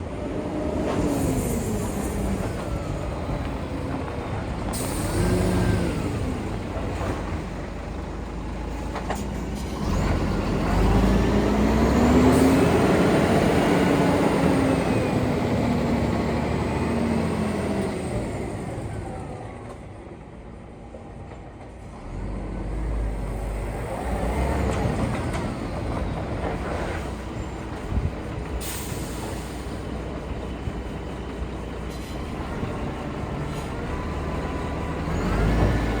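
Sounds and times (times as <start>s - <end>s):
diesel truck engine revving: 0.1s - 8.8s, 9.7s - 19.2s, 22.0s - 36.0s
air brake release hiss: 28.6s - 29.8s.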